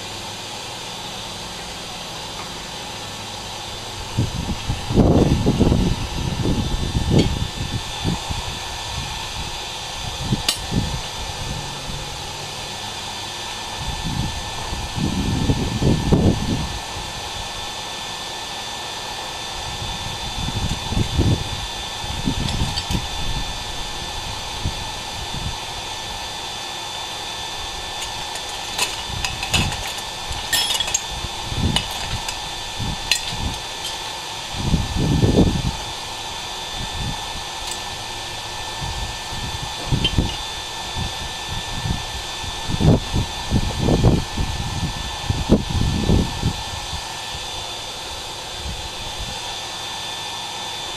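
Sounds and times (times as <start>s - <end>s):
electric blower whirring: 0.0s - 50.9s
light metallic clinks: 28.0s - 31.1s.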